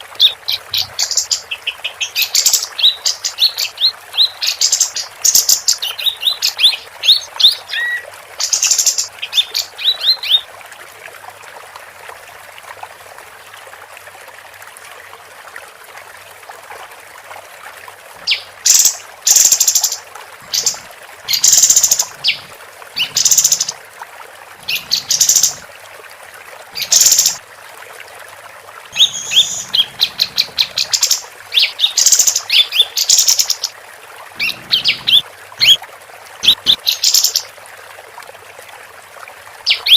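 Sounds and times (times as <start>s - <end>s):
songbird chirps and trills: 0.2s - 10.4s, 18.2s - 23.8s, 24.6s - 25.6s, 26.8s - 27.4s, 29.0s - 33.8s, 34.4s - 35.8s, 36.4s - 37.5s.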